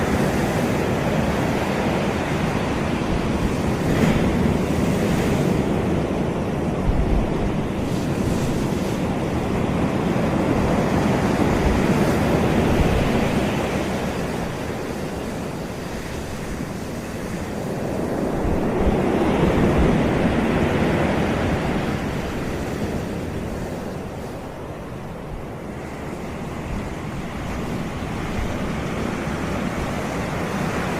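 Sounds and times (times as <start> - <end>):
ocean surf breaking on beach: 0.0 - 30.9.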